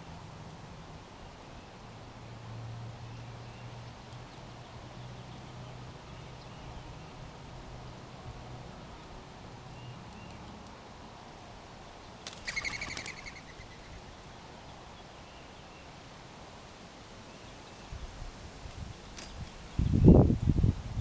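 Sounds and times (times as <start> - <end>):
outdoor background noise: 0.0 - 21.0
bird chattering call: 12.4 - 14.0
faint bird chirps: 12.4 - 15.9.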